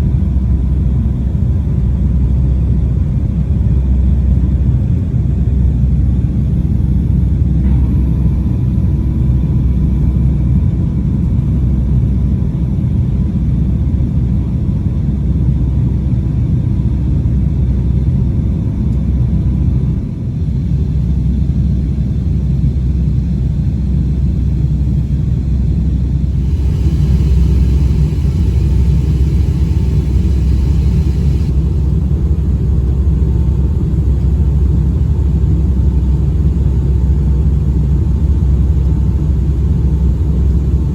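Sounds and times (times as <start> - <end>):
airplane cabin rumble: 0.0 - 40.9
faint steady tone: 24.0 - 32.2
high hiss: 26.2 - 31.9.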